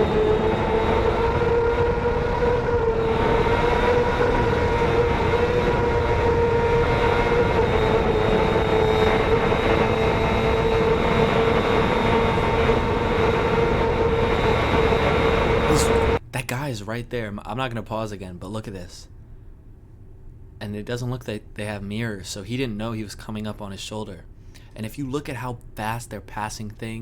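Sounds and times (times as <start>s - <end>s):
motorcycle engine at high revs: 0.0s - 16.2s
wind rush: 0.0s - 16.2s.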